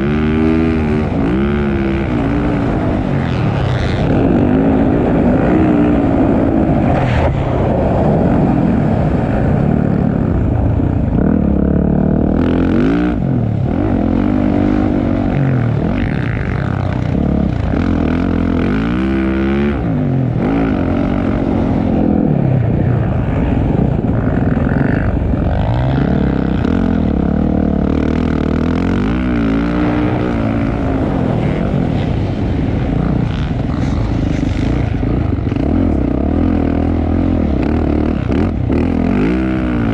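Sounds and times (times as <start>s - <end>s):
motocross bike engine revving: 0.0s - 7.0s, 11.2s - 39.9s.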